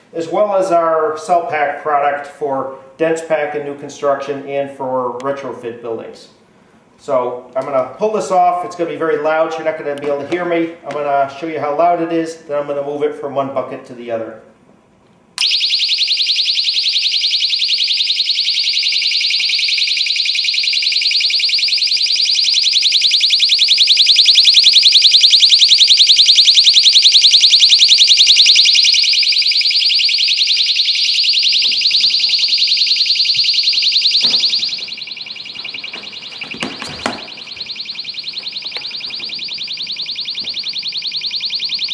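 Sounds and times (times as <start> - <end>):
personal alarm shrieking: 15.4 - 41.9
handling thumps: 34.2 - 39.5.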